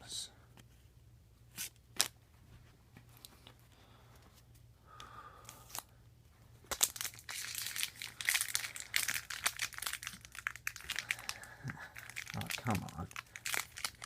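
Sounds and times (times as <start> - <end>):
plastic wrapper crinkling: 6.6 - 14.0.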